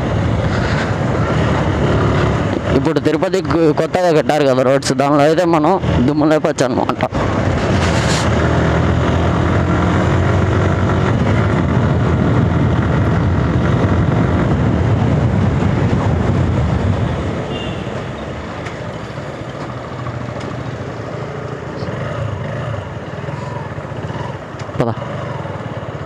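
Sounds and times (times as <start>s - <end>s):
motorcycle engine running: 7.2s - 26.0s.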